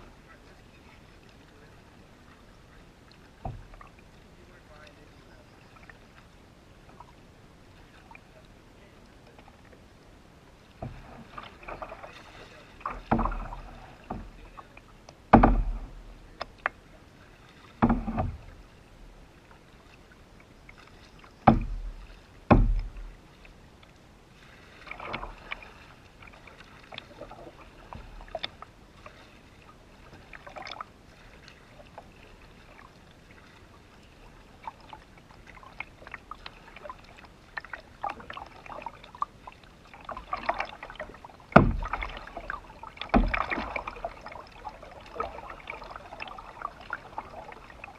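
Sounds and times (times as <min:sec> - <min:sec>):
paddle splashing in water: 0:00.0 - 0:47.9
deep thumps on canoe: 0:03.3 - 0:03.9, 0:10.7 - 0:16.8, 0:17.5 - 0:19.2, 0:20.8 - 0:23.3, 0:39.9 - 0:47.9.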